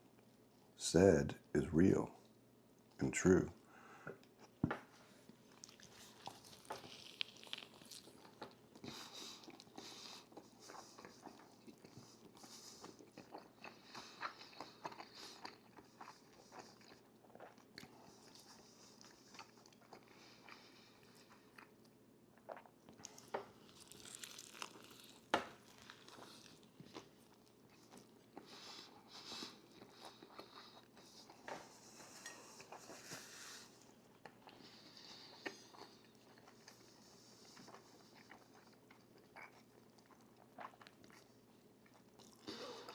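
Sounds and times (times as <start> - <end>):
biting and chewing crunchy food: 5.2 - 42.9.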